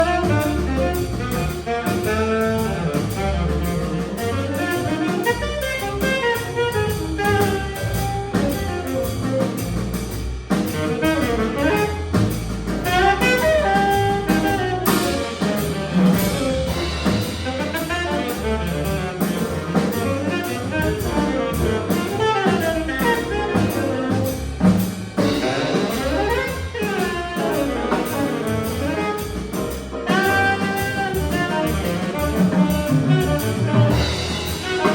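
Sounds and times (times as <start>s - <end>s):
saxophone melody: 0.0s - 9.1s, 10.8s - 12.0s, 12.8s - 24.5s, 25.2s - 34.9s
drum kit: 0.0s - 34.9s.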